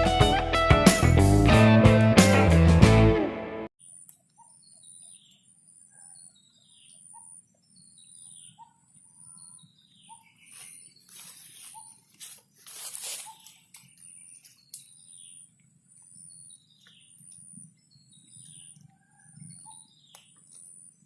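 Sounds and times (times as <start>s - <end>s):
guitar music: 0.0s - 3.7s
bird chirping: 3.8s - 21.0s
rustling: 10.6s - 13.9s.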